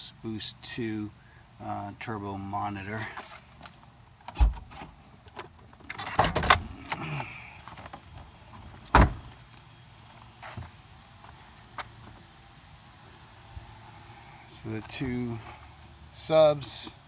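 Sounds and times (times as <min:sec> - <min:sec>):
knocks and clunks of car parts: 0:04.3 - 0:07.0, 0:08.8 - 0:09.3.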